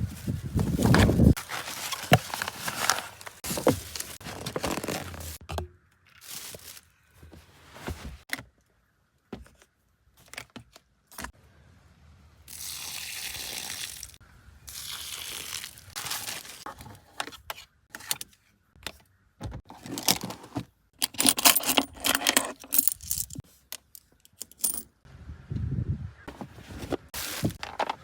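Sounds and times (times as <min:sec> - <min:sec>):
clicks and clinks of small items: 0:21.0 - 0:24.9.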